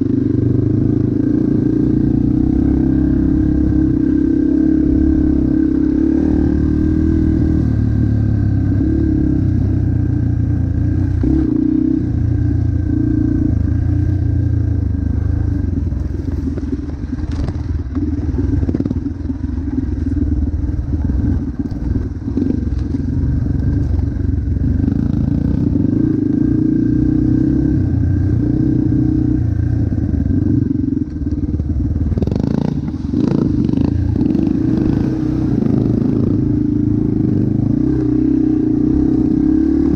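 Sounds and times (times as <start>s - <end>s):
motocross bike engine revving: 0.8s - 9.8s, 32.0s - 39.9s
bike rattling over rough ground: 15.4s - 24.3s.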